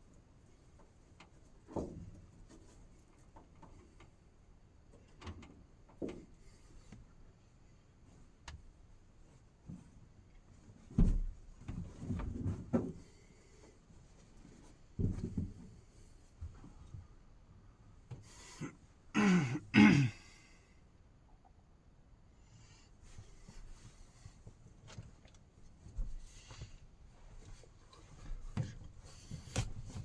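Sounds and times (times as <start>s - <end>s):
knocks and clatter of handling: 10.8s - 13.2s, 14.2s - 17.0s.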